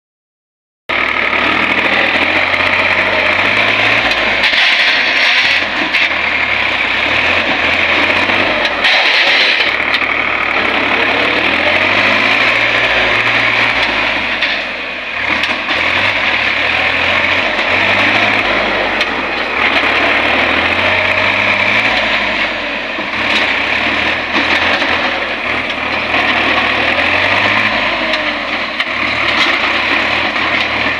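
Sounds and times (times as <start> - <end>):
tractor diesel engine running: 0.9 - 30.9.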